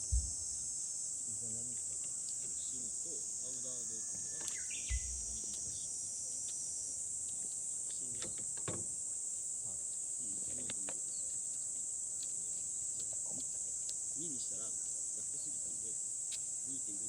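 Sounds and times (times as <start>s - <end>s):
low thump: 0.0s - 0.6s
insects shrilling: 0.0s - 17.0s.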